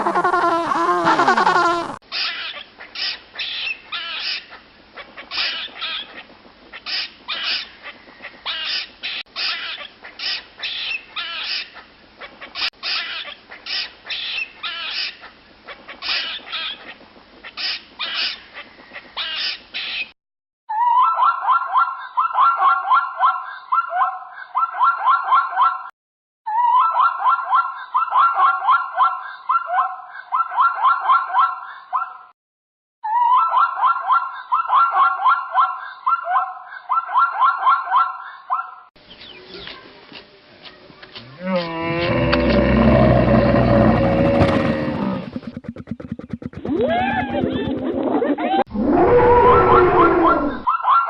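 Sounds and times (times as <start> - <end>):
short animal calls: 0.0 - 2.0
rapid animal calls: 0.0 - 4.5, 41.5 - 50.7.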